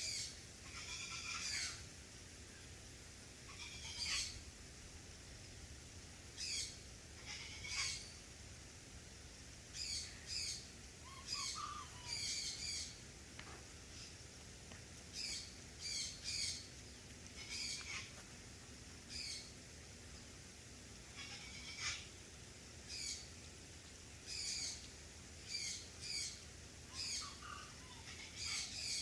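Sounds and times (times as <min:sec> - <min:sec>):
background hiss: 0:00.0 - 0:29.0
bird chirping: 0:15.2 - 0:18.0.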